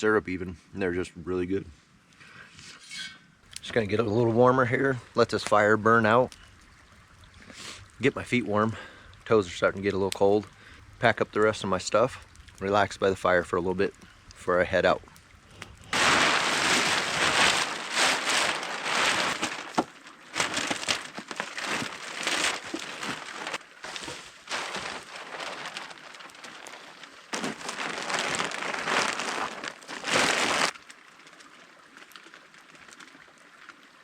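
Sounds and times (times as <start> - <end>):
gear rustling and crinkling: 15.7 - 30.8.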